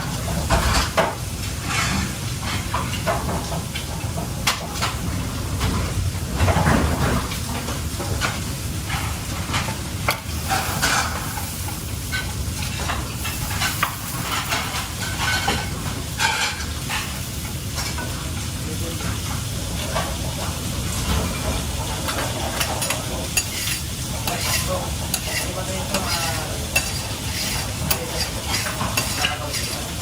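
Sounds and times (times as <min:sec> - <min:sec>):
food sizzling in a pan: 0:00.0 - 0:05.6, 0:07.3 - 0:30.0
utensil scraping and tapping pan: 0:22.6 - 0:30.0.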